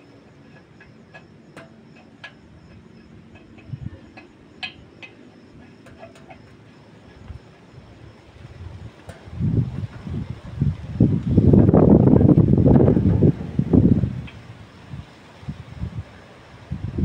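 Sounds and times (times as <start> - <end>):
light metallic clicks and clinks: 0.0 - 7.6.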